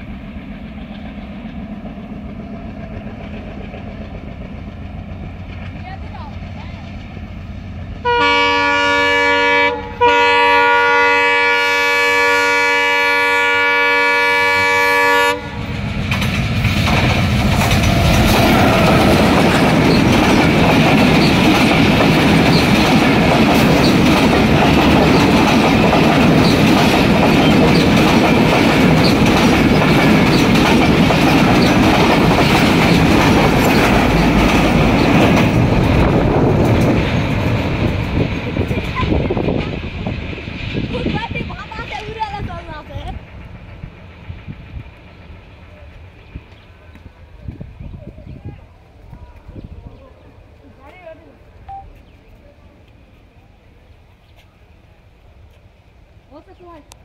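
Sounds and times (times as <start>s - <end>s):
train passing rumble: 0.0s - 57.0s
train horn blasts: 8.0s - 15.7s
wheels clattering over rail joints: 15.8s - 44.6s.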